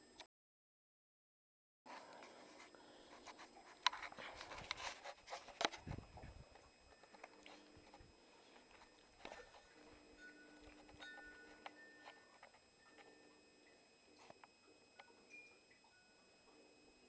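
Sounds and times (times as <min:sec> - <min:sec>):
dog scratchy rustling and clicks: 0:02.6 - 0:06.3.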